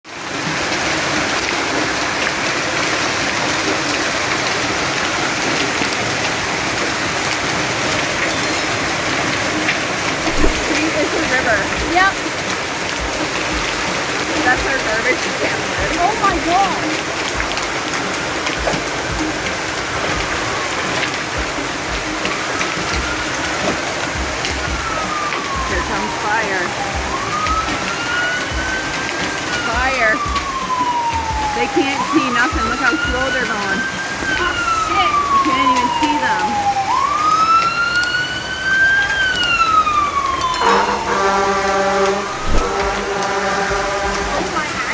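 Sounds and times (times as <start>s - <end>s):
hailstones ticking: 0.1s - 41.1s, 42.0s - 44.9s
hail and heavy rain pelting: 0.1s - 44.9s
faint siren wailing: 0.2s - 44.9s.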